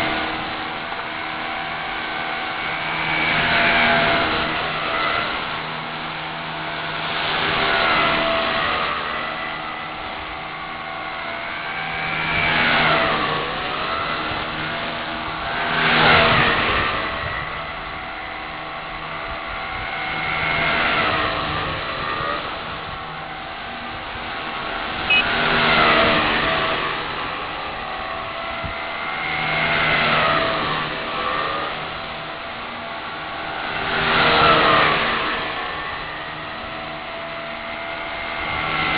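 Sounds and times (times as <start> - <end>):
rc helicopter motor whine: 0.0 - 38.9.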